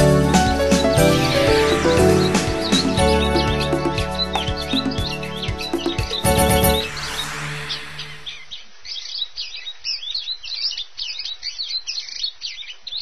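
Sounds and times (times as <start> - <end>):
background music: 0.0 - 8.5
birds chirping: 0.0 - 13.0.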